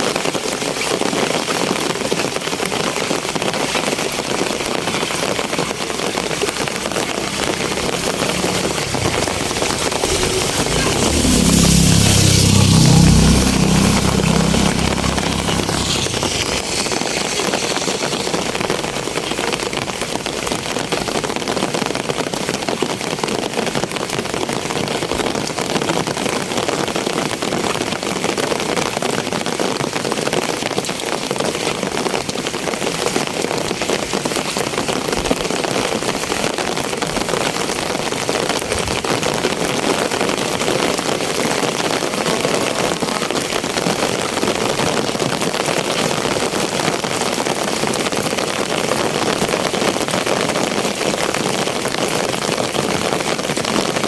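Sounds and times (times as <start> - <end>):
steady rain falling: 0.0 - 54.0
vehicle engine: 4.6 - 20.1.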